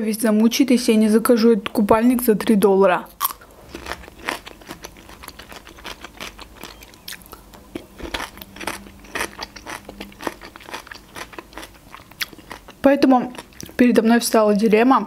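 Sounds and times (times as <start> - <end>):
crunchy cucumber chewing: 3.2 - 13.8.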